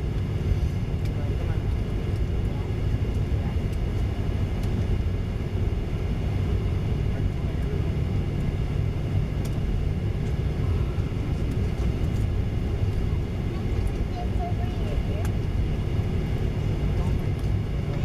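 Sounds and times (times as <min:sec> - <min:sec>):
jet engine cabin rumble: 0:00.0 - 0:18.0.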